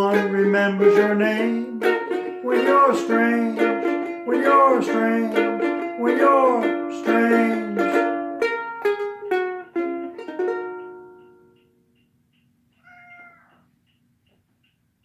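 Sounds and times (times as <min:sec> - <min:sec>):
ukulele plucking: 0:00.0 - 0:11.6
faint even ticking: 0:00.0 - 0:15.0
short animal call: 0:12.8 - 0:13.7.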